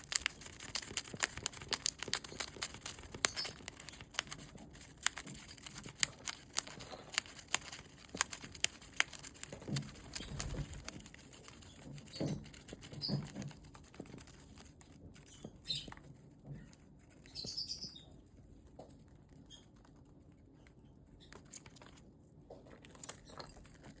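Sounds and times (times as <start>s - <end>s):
bird tearing paper: 0.0s - 15.1s
bird chirps: 3.2s - 3.6s, 15.2s - 18.2s.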